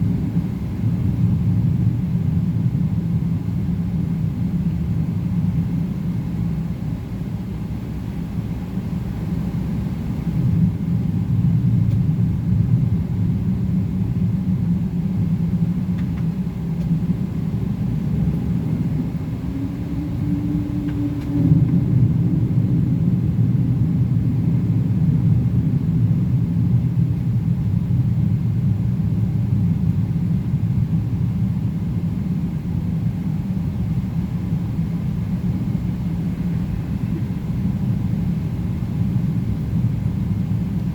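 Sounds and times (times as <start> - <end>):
jet cabin low rumble: 0.0 - 40.9.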